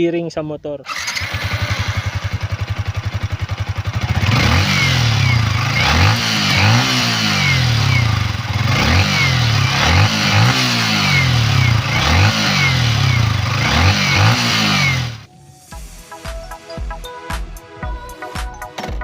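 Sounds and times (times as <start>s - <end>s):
engine revving in throttle blips: 0.9s - 15.3s
motorcycle engine idling: 0.9s - 15.3s.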